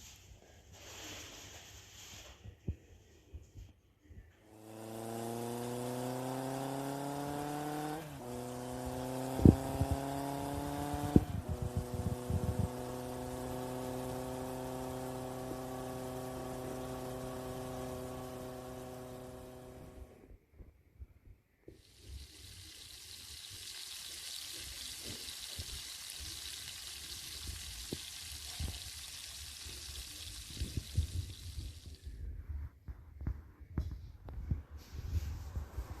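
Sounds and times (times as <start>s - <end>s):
machine hum: 4.4s - 20.2s, 21.8s - 32.1s.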